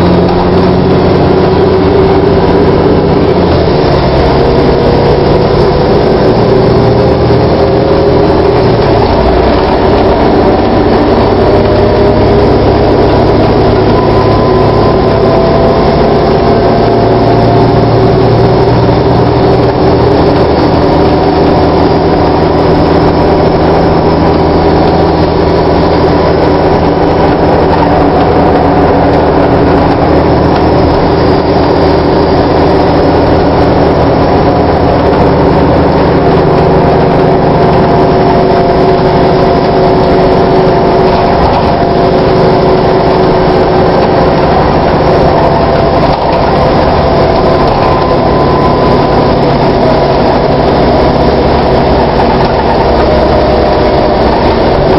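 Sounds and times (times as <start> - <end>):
bus diesel engine running: 0.0 - 54.9.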